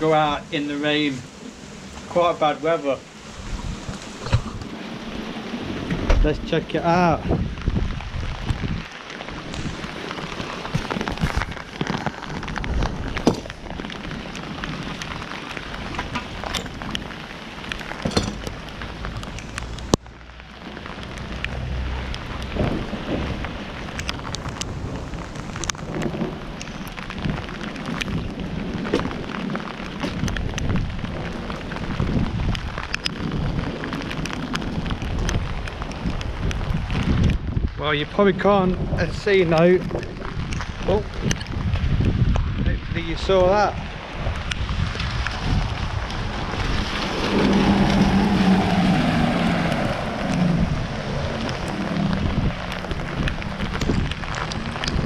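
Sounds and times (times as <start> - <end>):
heavy rain falling: 0.0 - 55.0
low rumbling noise: 0.0 - 55.0
raindrops ticking on microphone: 0.0 - 55.0.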